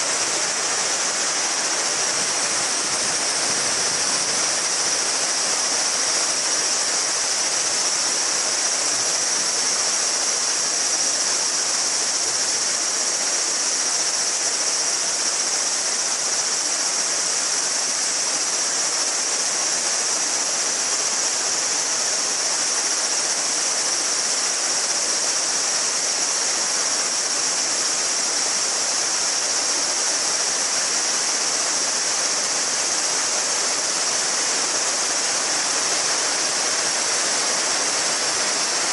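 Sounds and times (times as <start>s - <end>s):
cicadas chorus: 0.0s - 38.9s
river babbling: 0.0s - 38.9s.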